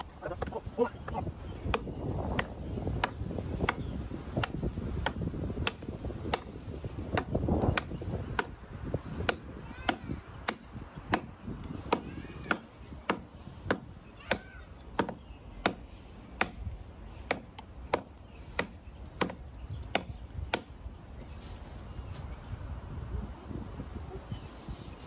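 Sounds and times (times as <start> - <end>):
blade chopping into wood: 1.7 - 20.7.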